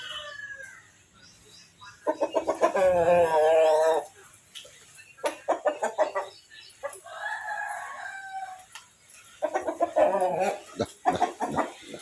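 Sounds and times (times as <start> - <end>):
chickens clucking: 0.0 - 12.0
rooster crowing: 7.1 - 8.6.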